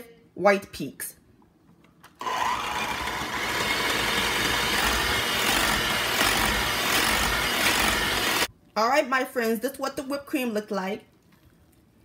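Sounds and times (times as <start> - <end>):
electric hand mixer whipping cream: 2.2 - 8.5.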